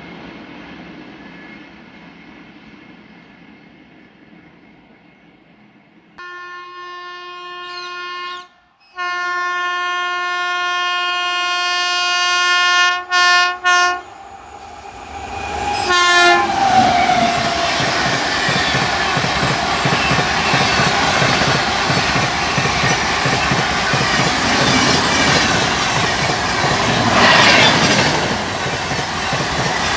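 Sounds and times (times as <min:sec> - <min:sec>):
locomotive air horn blasts: 0:06.2 - 0:14.1, 0:15.7 - 0:16.8
train rushing and clattering: 0:13.6 - 0:29.9.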